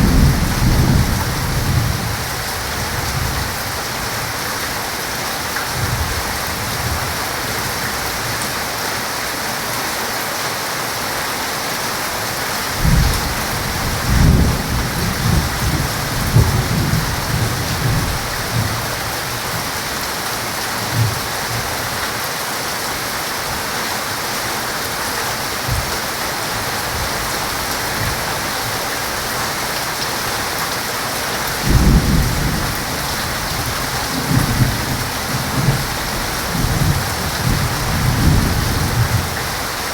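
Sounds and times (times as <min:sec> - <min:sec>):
thunder rumbling: 0:00.0 - 0:03.7, 0:12.8 - 0:19.5, 0:31.6 - 0:39.6
heavy rain falling: 0:00.0 - 0:39.9.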